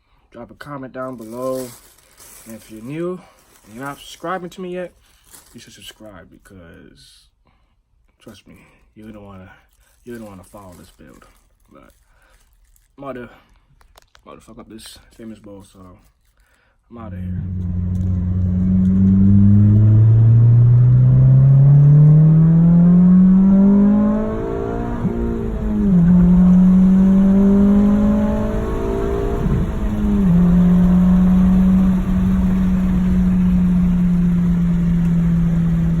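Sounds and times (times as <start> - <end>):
car engine accelerating: 17.1 - 36.0.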